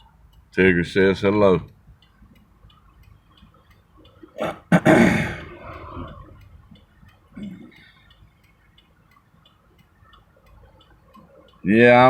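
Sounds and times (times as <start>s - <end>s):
steady ticking: 0.0s - 12.0s.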